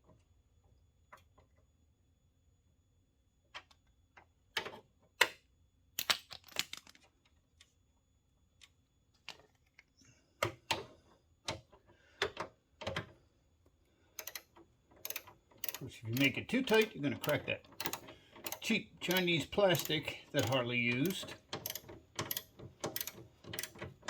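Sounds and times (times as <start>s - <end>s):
wrench ratcheting: 14.2s - 23.8s.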